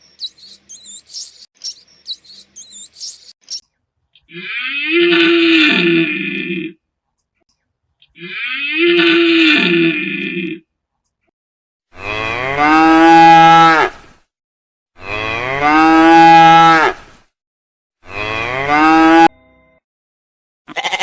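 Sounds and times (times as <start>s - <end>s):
cow mooing: 4.3s - 6.7s, 8.2s - 10.6s, 18.0s - 19.3s.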